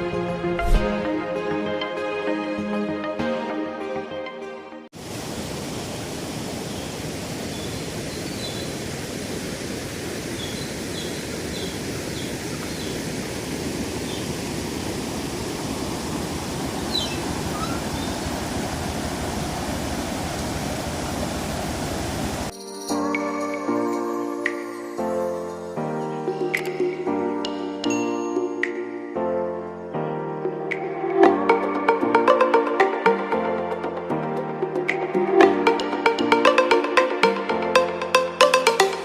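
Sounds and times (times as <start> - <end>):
river rushing: 5.0 - 22.5.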